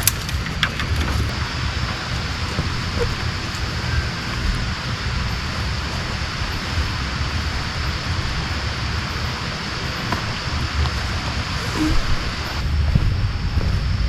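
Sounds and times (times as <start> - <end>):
heavy rain hiss: 0.0 - 14.0
wind rumble on microphone: 0.0 - 14.0.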